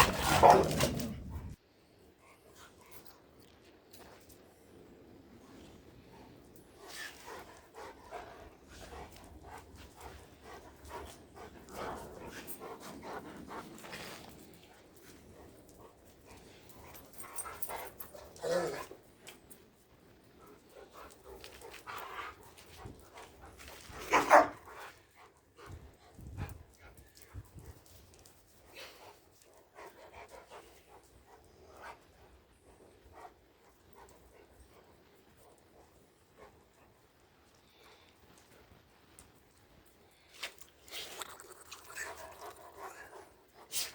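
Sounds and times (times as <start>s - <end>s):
dog making excited noises: 0.0s - 1.6s, 23.6s - 24.9s.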